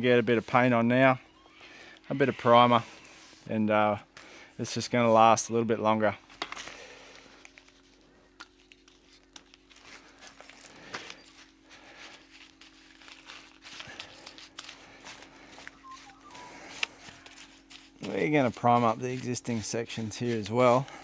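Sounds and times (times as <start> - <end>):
faint steady hum: 0.0 - 21.0
paintbrush clicks and scrapes: 7.3 - 21.0.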